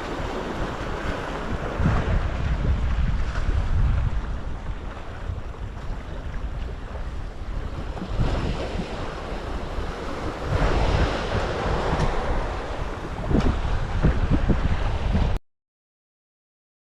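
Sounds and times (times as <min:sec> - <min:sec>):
sea surf washing: 0:00.0 - 0:15.4
wind buffeting microphone: 0:00.0 - 0:15.4.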